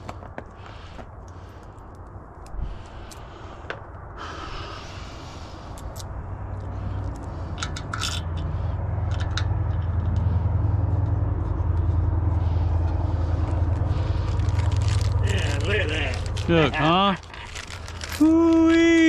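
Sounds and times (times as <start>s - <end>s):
low motor hum: 5.4s - 18.2s.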